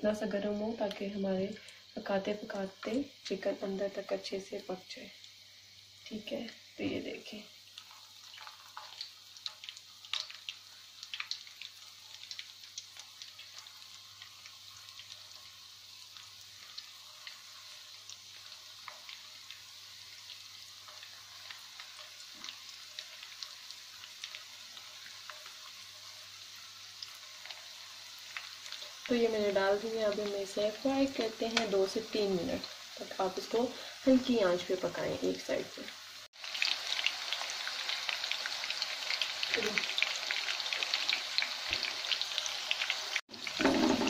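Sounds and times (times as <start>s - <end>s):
chicken sizzling in hot oil: 0.0s - 44.0s.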